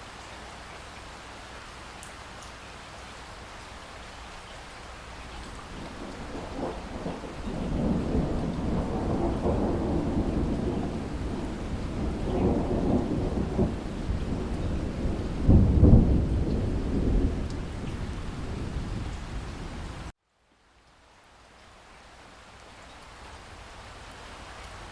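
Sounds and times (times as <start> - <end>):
steady rain: 0.0 - 24.9
thunder rolling: 5.4 - 20.1.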